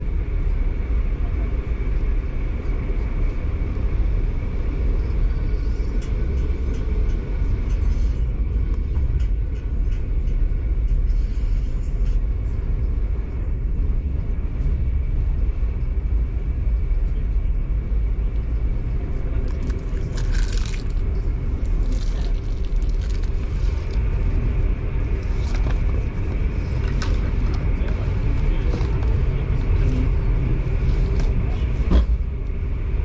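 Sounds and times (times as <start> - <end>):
train rumbling: 0.0 - 33.0.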